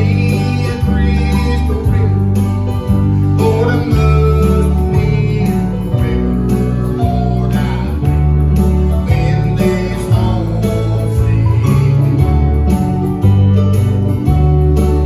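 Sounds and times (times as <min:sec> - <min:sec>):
person singing: 0:00.0 - 0:13.0
bass line: 0:00.0 - 0:15.0
guitar: 0:00.0 - 0:15.0.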